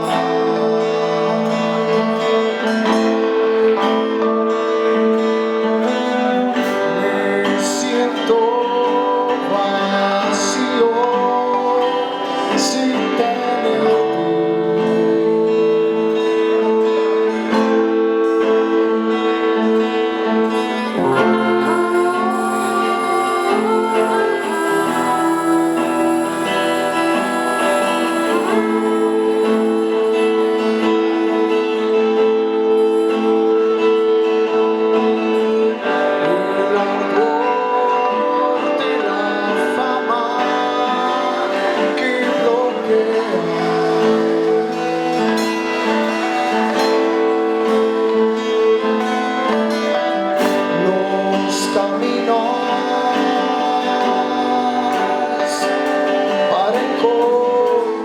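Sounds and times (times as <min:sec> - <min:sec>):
guitars and bass chords: 0:00.0 - 0:58.0
gliding melody line: 0:18.2 - 0:57.7
cymbal strokes: 0:20.8 - 0:32.0.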